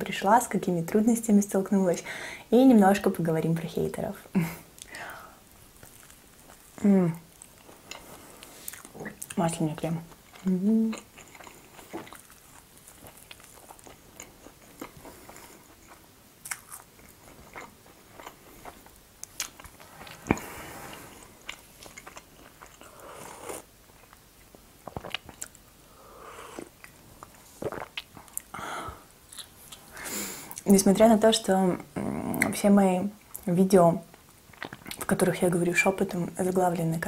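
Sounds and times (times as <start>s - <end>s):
wet chewing with mouth clicks: 5.8s - 25.6s, 26.5s - 28.5s, 29.3s - 29.9s, 34.2s - 35.2s.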